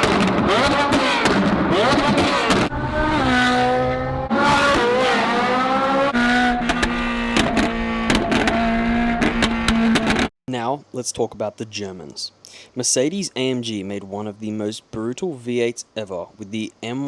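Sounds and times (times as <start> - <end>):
exhaust pops: 0.0 - 2.7, 6.4 - 10.3
car engine revving hard: 0.0 - 10.3.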